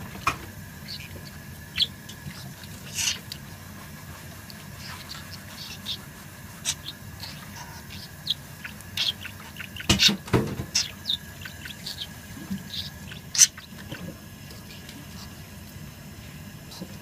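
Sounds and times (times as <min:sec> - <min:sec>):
budgerigar chirping: 0:00.8 - 0:02.0, 0:02.8 - 0:03.2, 0:06.6 - 0:13.8.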